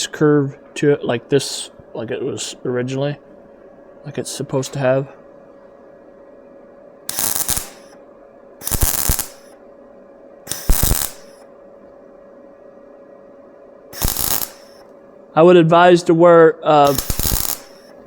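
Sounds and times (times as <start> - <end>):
crackling tack welds: 7.1 - 8.0, 8.6 - 9.6, 10.5 - 11.4, 14.0 - 14.9, 16.8 - 18.0.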